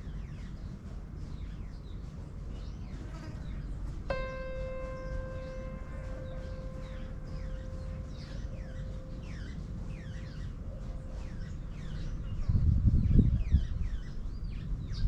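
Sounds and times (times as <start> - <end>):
birds chirping: 1.4 - 15.0
low background rumble: 3.9 - 15.0
steady pitched tone: 4.1 - 11.2.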